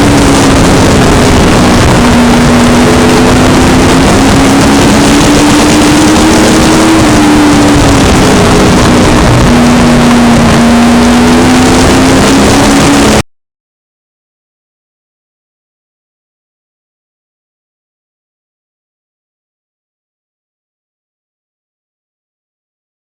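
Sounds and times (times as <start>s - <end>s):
racing truck engines: 0.0s - 13.2s.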